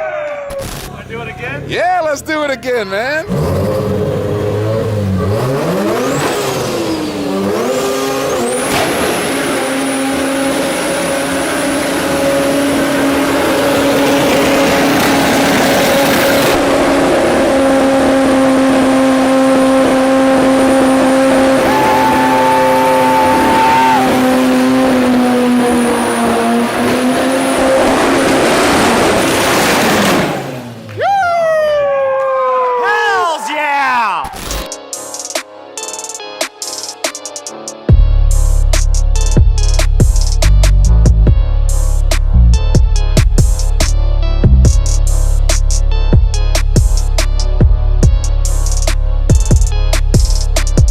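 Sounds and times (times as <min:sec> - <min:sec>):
engine revving high: 0:03.2 - 0:31.0.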